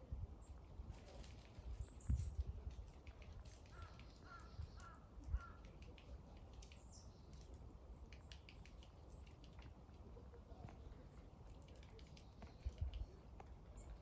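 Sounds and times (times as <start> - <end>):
crows cawing: 3.7 - 5.6.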